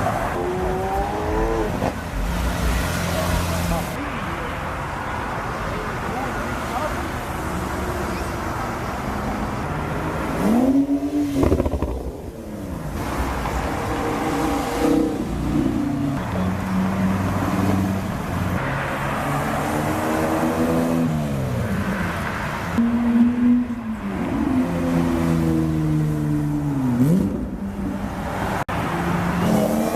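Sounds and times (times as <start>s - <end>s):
car engine revving: 9.2s - 29.9s.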